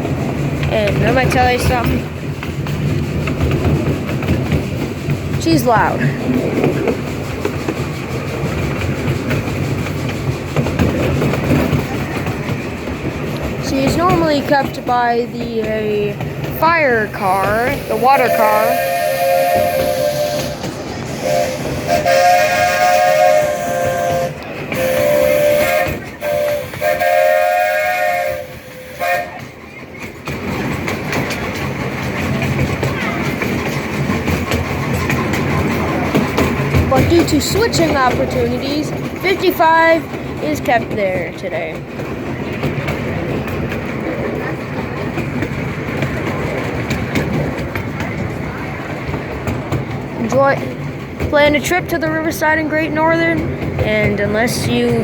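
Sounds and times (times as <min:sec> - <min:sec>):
train running: 0:00.0 - 0:55.0
wheels clicking over rail joints: 0:00.0 - 0:55.0
steam locomotive chime whistle: 0:17.7 - 0:29.5.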